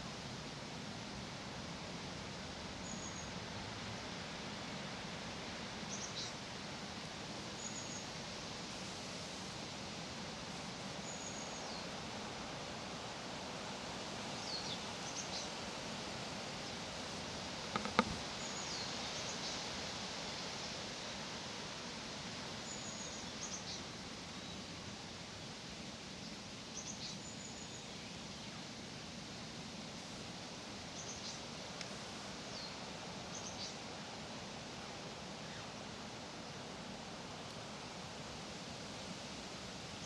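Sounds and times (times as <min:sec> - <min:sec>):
leaves rustling in breeze: 0:00.0 - 0:40.0
sharp click: 0:17.7 - 0:18.2.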